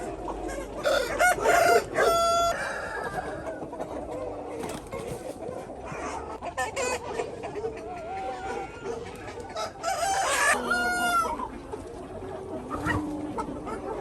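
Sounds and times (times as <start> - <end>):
chickens clucking: 0.0 - 14.0
rooster crowing: 0.8 - 3.4, 9.6 - 11.4.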